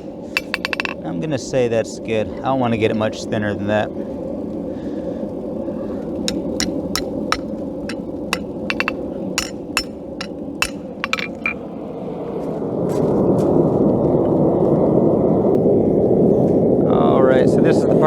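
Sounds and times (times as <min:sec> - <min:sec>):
hammer striking steel on anvil: 0:00.4 - 0:01.0, 0:06.3 - 0:11.6.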